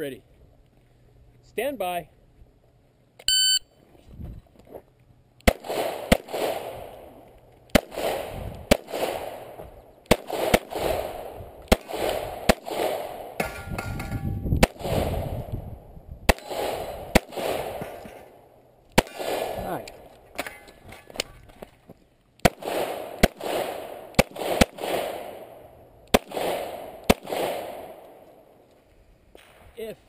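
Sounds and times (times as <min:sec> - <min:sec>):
shot timer beep: 0:03.3 - 0:03.7
pistol shots with echo: 0:05.4 - 0:07.1, 0:07.7 - 0:13.4, 0:14.6 - 0:15.4, 0:16.3 - 0:18.4, 0:19.0 - 0:20.1, 0:22.4 - 0:28.2.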